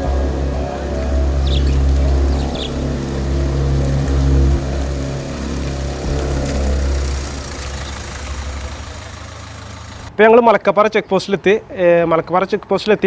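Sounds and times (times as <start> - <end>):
vehicle engine idling low: 0.0 - 10.2.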